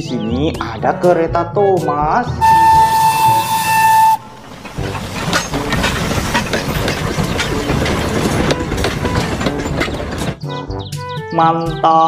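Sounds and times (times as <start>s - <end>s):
steam train whistle: 2.4s - 4.9s
train clickety-clack: 2.4s - 10.6s.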